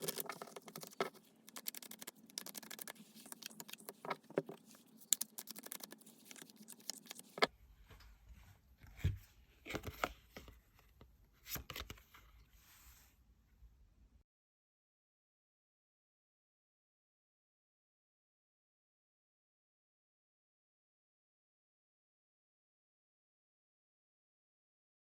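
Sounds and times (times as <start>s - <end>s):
cards being shuffled: 0.0s - 7.5s.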